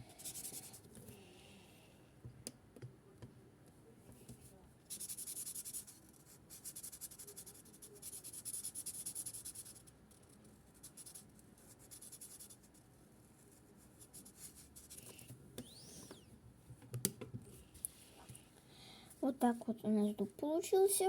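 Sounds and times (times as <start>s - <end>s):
marker rubbing on paper: 4.9s - 9.9s.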